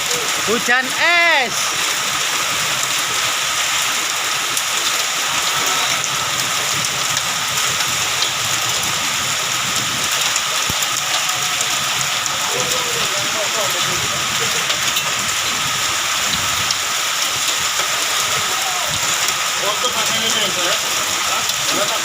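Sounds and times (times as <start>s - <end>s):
hailstones ticking on surfaces: 0.0s - 22.0s
heavy rain hiss: 0.0s - 22.0s.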